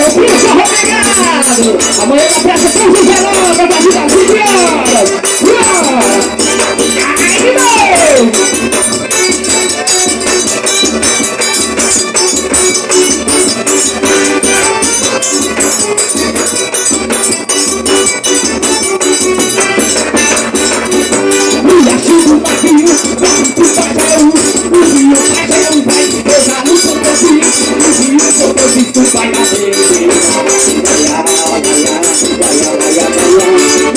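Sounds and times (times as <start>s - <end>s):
accordion melody: 0.0s - 33.9s
bass drum beat: 0.0s - 33.9s
triangle beat: 0.0s - 33.9s.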